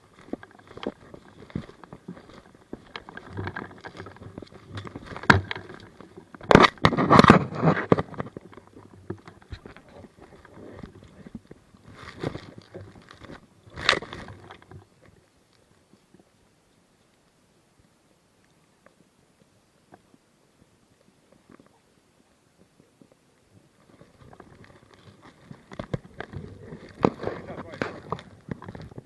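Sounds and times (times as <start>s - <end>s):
rustling and scraping: 0.0s - 16.3s, 23.0s - 29.0s.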